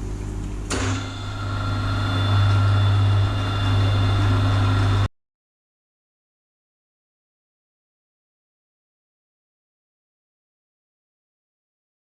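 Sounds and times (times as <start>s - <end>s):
milling machine humming and whining: 0.0s - 5.1s.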